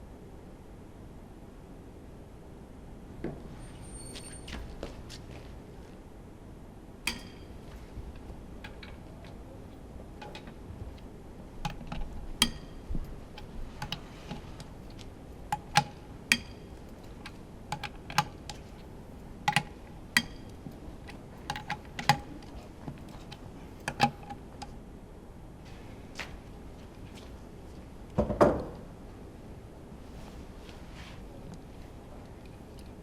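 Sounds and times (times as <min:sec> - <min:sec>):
hand tools clicking and tapping: 0:07.1 - 0:24.7.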